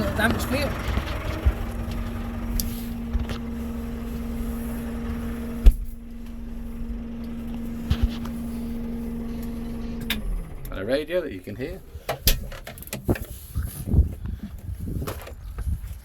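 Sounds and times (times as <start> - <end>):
steady whine: 0.0 - 13.5
tractor diesel engine running: 0.0 - 15.8.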